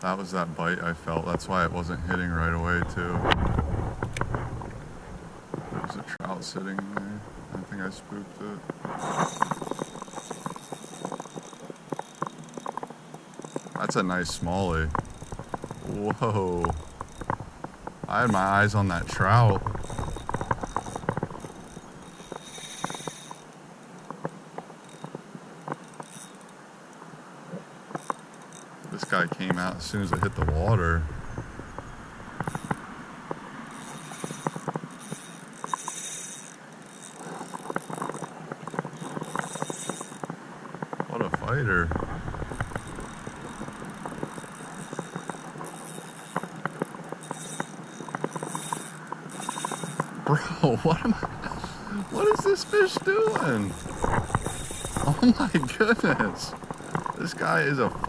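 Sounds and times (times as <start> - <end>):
fishing reel clicking: 8.7 - 26.6, 27.9 - 32.9, 33.6 - 58.0
creek water rushing: 50.0 - 54.2.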